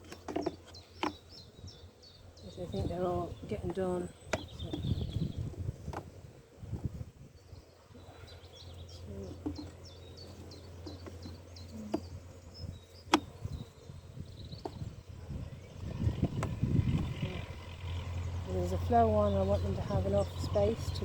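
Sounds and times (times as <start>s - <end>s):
knocks of wooden hive frames: 0.0s - 1.3s, 13.0s - 13.4s
honeybees humming: 0.0s - 21.0s.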